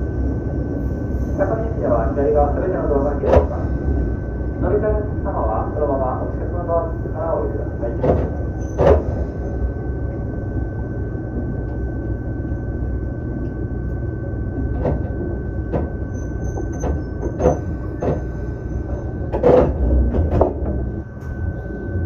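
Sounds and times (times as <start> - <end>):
electric train running rumble: 0.0 - 22.0
constant high tone: 20.6 - 22.0.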